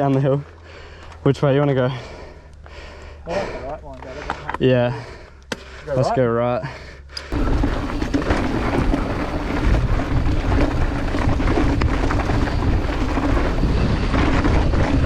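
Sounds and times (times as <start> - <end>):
bike rattling and knocking: 7.3 - 15.0
bike tyres rumbling on dirt: 7.3 - 15.0.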